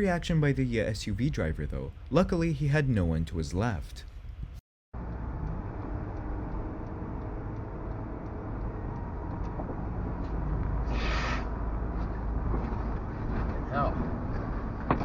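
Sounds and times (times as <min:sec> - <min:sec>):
road and engine rumble: 0:04.4 - 0:15.0
hissing rush of noise: 0:10.8 - 0:11.6.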